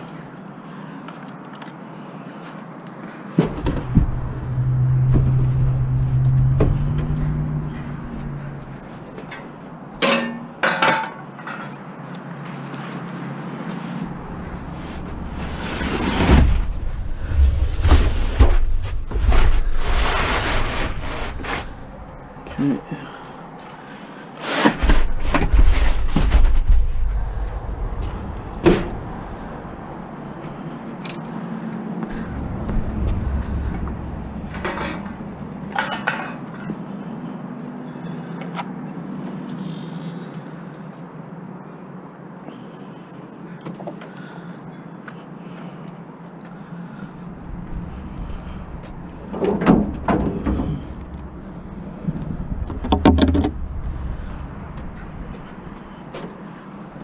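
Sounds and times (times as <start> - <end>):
low vehicle rumble: 3.4 - 10.0, 13.1 - 24.0, 24.8 - 38.3, 45.4 - 57.0
wind buffeting microphone: 3.6 - 9.0, 25.5 - 30.6, 32.1 - 35.7, 47.2 - 55.8.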